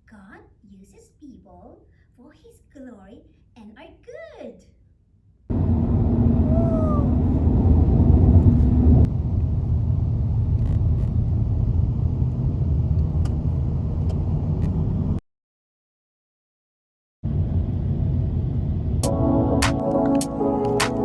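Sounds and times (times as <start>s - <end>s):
low rumbling noise: 5.5s - 15.2s, 17.3s - 21.0s.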